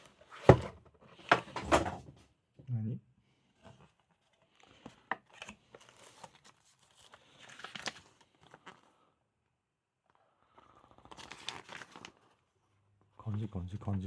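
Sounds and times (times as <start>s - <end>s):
packaging crinkling and tearing: 4.6s - 8.9s, 10.5s - 12.4s.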